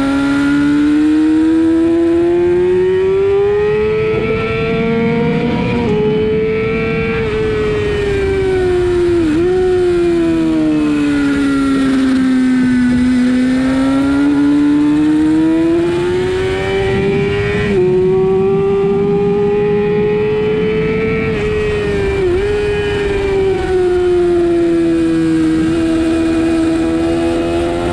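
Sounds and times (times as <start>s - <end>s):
sportbike engine accelerating: 0.0s - 27.9s.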